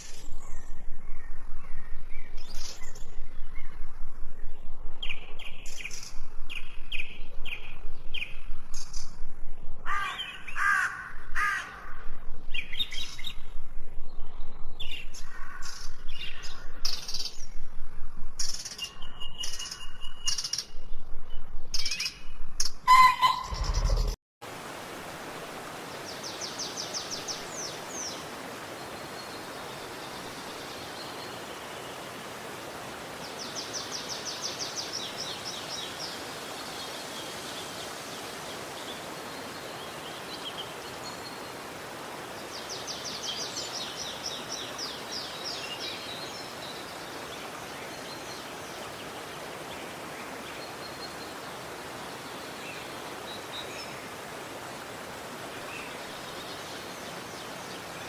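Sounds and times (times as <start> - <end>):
forest stream rushing: 22.9 - 58.0.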